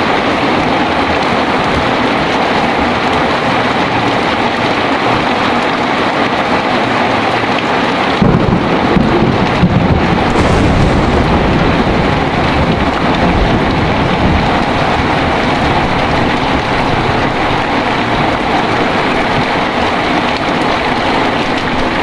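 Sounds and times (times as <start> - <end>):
heavy rain falling: 0.0 - 22.0
thunder rumble: 8.2 - 22.0.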